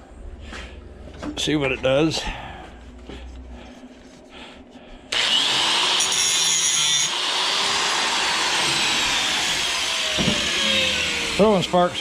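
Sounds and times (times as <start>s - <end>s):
electric grinder whining: 5.1s - 12.0s.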